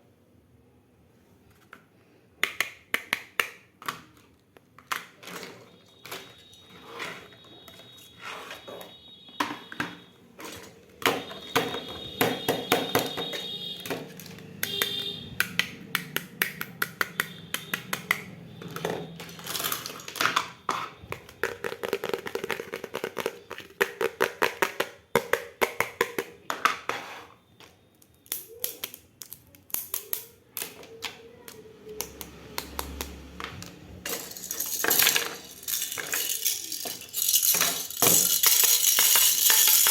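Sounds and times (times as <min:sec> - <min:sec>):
plastic toy pieces clicking: 0:28.0 - 0:39.9
thin high tones: 0:34.1 - 0:39.9.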